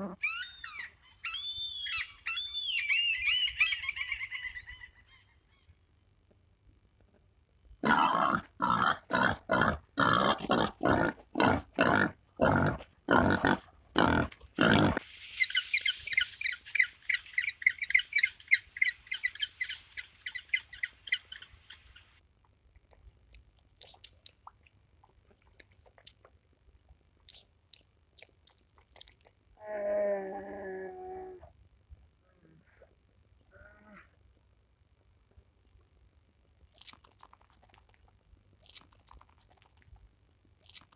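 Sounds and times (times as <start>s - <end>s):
harsh animal calls: 7.8s - 21.5s.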